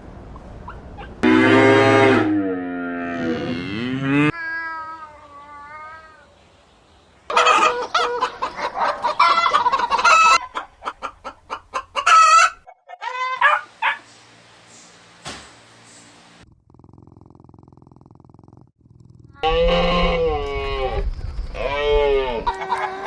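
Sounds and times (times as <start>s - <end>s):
chickens clucking: 7.3s - 14.0s, 22.4s - 23.0s.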